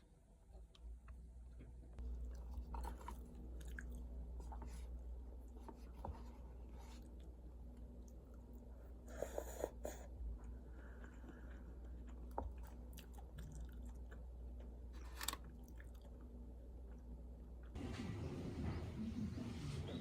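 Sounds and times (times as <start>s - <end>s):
steady low hum: 0.0s - 20.0s
food being chewed: 2.0s - 9.0s, 10.0s - 17.8s.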